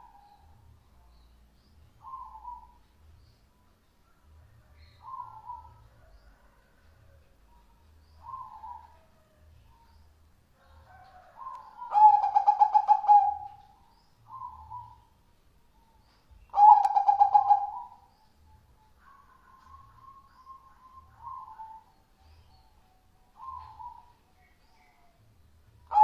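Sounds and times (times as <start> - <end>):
dove cooing: 2.0 - 2.8, 5.0 - 6.6, 8.2 - 9.2, 10.9 - 15.1, 16.5 - 18.1, 19.1 - 21.9, 23.4 - 24.2.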